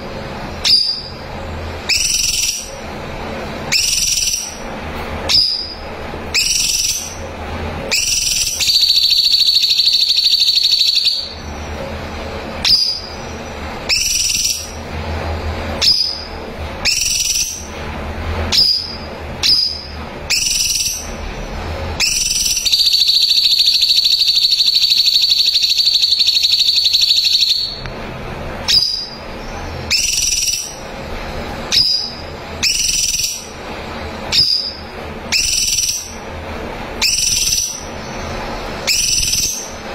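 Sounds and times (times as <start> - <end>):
bird whistling rising notes: 0.6 - 1.2, 1.9 - 2.8, 3.7 - 4.6, 5.3 - 7.3, 7.9 - 11.7, 12.6 - 14.8, 15.8 - 17.8, 18.5 - 21.2, 22.0 - 27.8, 28.7 - 29.3, 29.9 - 30.9, 31.7 - 33.6, 34.3 - 36.3, 37.0 - 39.8
bird rapid trills: 1.9 - 2.9, 3.6 - 4.7, 5.3 - 11.9, 12.6 - 15.0, 15.8 - 17.8, 18.5 - 27.8, 28.7 - 31.0, 31.6 - 33.7, 34.3 - 36.3, 37.0 - 39.9.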